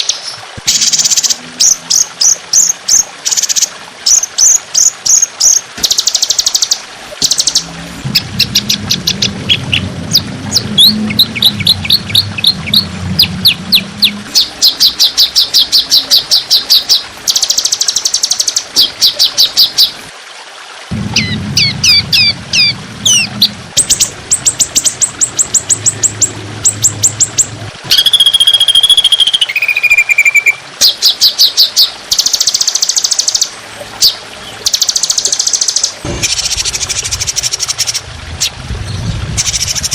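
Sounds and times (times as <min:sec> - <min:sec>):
songbird chirps and trills: 0:00.0 - 0:20.0, 0:20.9 - 0:38.0
bird whistled notes: 0:27.9 - 0:30.6.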